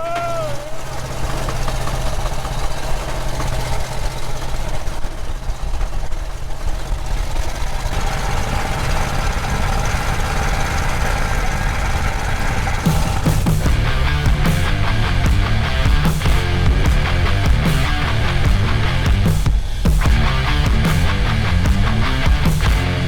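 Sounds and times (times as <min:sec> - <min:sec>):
road noise: 0:00.0 - 0:23.0
car engine running: 0:00.2 - 0:23.0.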